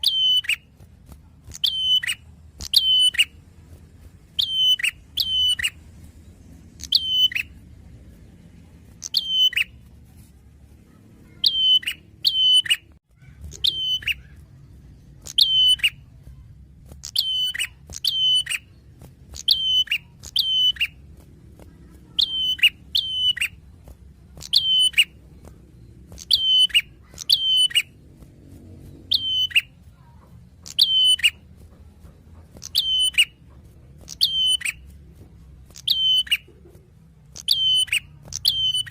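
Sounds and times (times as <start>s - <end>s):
songbird calling: 0.0s - 0.6s, 4.4s - 5.8s, 6.8s - 7.6s, 11.2s - 14.5s, 19.4s - 21.0s, 22.1s - 23.6s, 26.1s - 28.0s, 29.0s - 29.8s, 30.6s - 31.4s, 32.6s - 33.4s, 35.7s - 36.6s, 37.4s - 38.9s.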